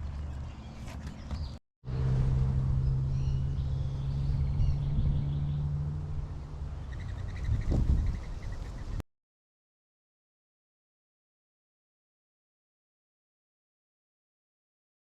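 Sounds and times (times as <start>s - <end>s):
birds chirping: 0.0s - 2.1s, 2.7s - 9.0s
low engine hum: 0.0s - 9.0s.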